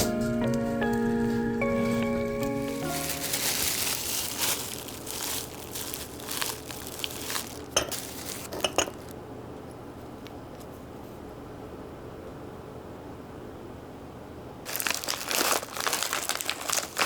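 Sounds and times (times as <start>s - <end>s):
rustling and crinkling: 0.0s - 9.1s, 14.7s - 17.0s.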